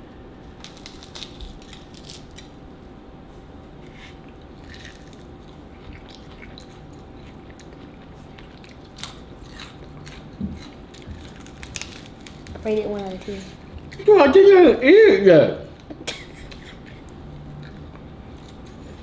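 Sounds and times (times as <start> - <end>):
chewing crispy fried chicken: 0.4 - 2.7, 3.5 - 14.1, 15.8 - 19.0.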